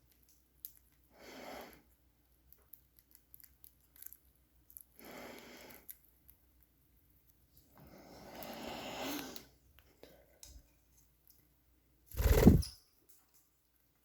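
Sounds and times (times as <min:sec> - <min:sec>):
soft breathy hisses: 0:07.9 - 0:09.6.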